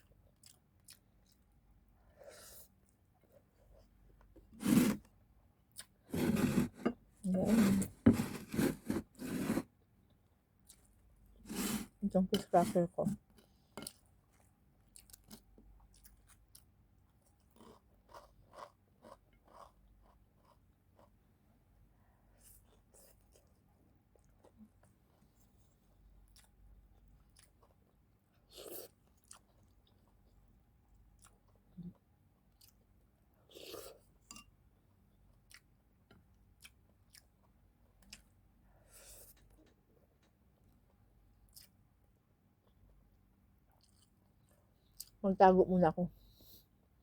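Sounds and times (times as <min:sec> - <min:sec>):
person chewing: 0:13.8 - 0:16.7, 0:17.3 - 0:21.1, 0:26.3 - 0:30.1, 0:31.2 - 0:32.8, 0:36.6 - 0:38.3, 0:41.5 - 0:41.7, 0:43.7 - 0:45.2
crunching of crackers being chewed: 0:13.9 - 0:21.2, 0:43.7 - 0:45.2.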